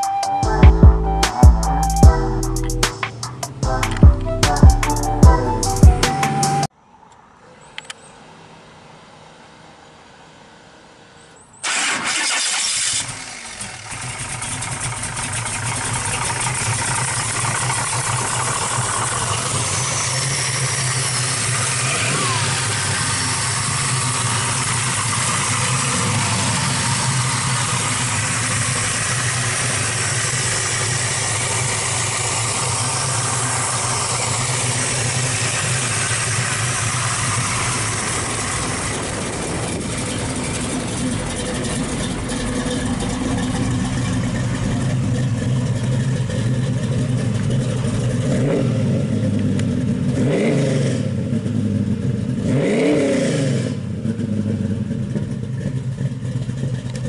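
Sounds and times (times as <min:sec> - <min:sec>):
engine starting and idling: 0:11.6 - 0:48.6, 0:54.8 - 0:57.0.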